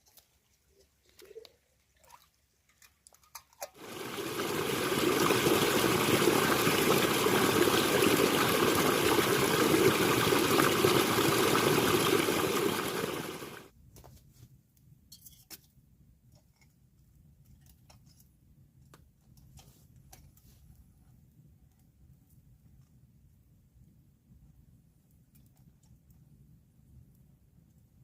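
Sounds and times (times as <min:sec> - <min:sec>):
liquid pouring: 0:03.6 - 0:13.7.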